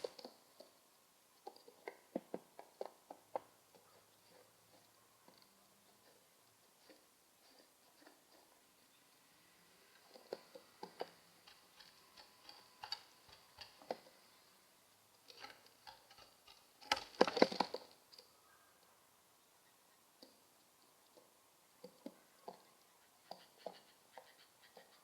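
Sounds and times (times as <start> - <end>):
rapid taps and scrapes: 10.0 - 14.1, 15.3 - 18.0.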